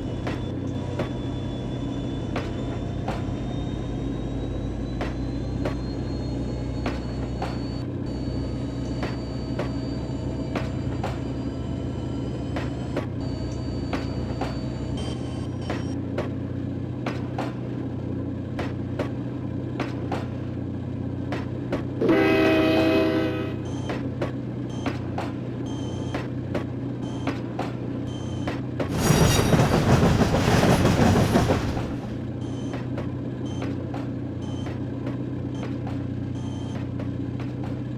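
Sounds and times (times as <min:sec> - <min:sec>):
wheel squeal: 0:00.0 - 0:16.0, 0:27.0 - 0:34.8
train rumble: 0:00.0 - 0:26.0, 0:28.8 - 0:37.9
train wheels clacking on rail joints: 0:28.8 - 0:32.8.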